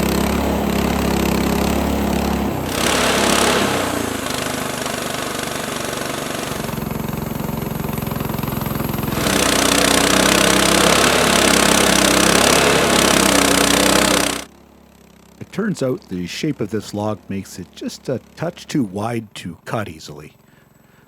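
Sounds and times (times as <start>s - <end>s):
saw blade cutting wood: 0.0s - 14.5s
small gas engine running: 0.0s - 21.0s.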